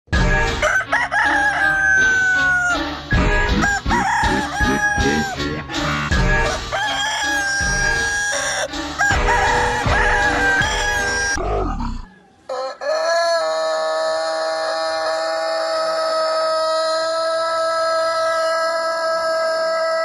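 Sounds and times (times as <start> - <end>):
rooster crowing: 0.6 - 2.9, 3.6 - 5.4, 6.5 - 20.0
music with heavy bass beat: 2.9 - 6.8, 7.6 - 11.2.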